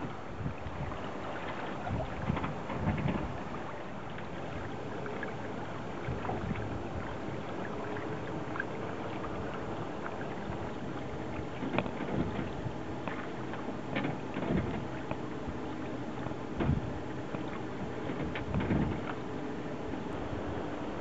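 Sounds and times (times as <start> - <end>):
rushing water: 0.0 - 21.0
light knocks and clicks: 11.5 - 15.2
rushing wind: 20.0 - 21.0.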